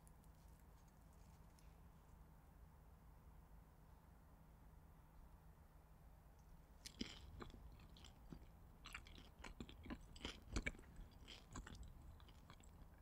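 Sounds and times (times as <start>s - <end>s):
chewing with mouth smacks: 6.8s - 13.0s.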